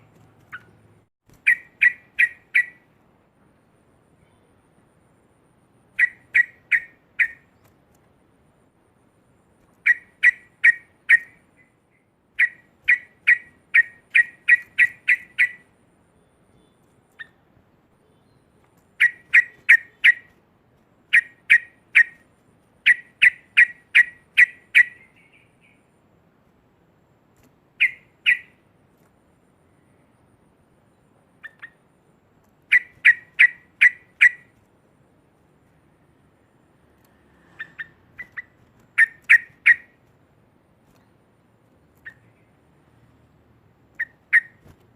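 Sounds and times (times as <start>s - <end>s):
bulbul chattering call: 5.9s - 7.5s, 19.0s - 20.3s, 27.8s - 28.6s, 32.7s - 34.5s, 37.6s - 40.0s.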